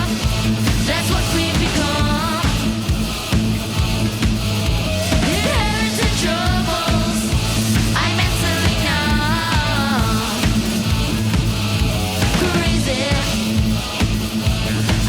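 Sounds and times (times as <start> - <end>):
person singing: 0.0 - 2.8, 5.3 - 10.7, 12.2 - 13.6
bass guitar: 0.0 - 15.0
distorted electric guitars: 0.0 - 15.0
drums: 0.0 - 15.0.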